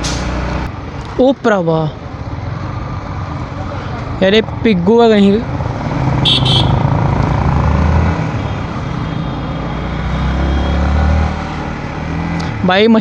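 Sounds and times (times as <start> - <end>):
wind and road noise: 0.0 - 13.0
motorcycle engine running: 2.1 - 7.7.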